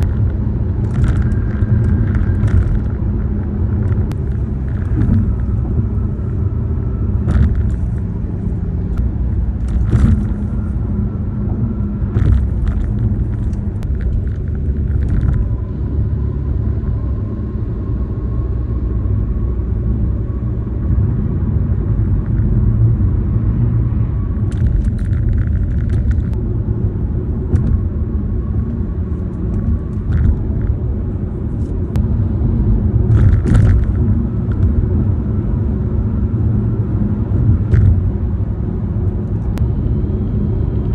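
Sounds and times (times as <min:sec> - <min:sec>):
tyre and road noise: 0:00.0 - 0:40.9
knocks and rattles from car interior: 0:03.8 - 0:06.0, 0:07.2 - 0:08.0, 0:09.6 - 0:10.7, 0:12.1 - 0:15.5, 0:24.6 - 0:26.4, 0:29.6 - 0:30.8, 0:33.0 - 0:34.9, 0:37.3 - 0:38.3.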